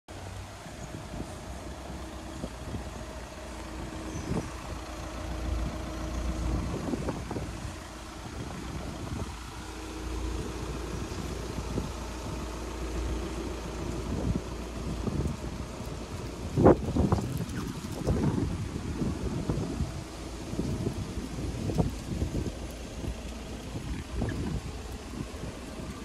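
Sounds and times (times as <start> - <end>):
diesel engine idling: 0.1 - 26.0.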